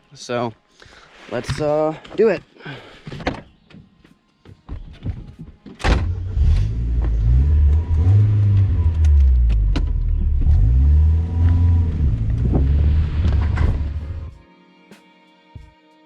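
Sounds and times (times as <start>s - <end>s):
car engine starting and revving: 5.9s - 14.3s.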